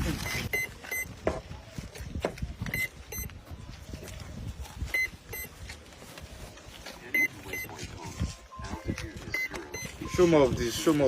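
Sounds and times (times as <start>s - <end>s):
short high electronic beeps: 0.2s - 1.1s, 7.1s - 7.7s, 9.3s - 10.2s.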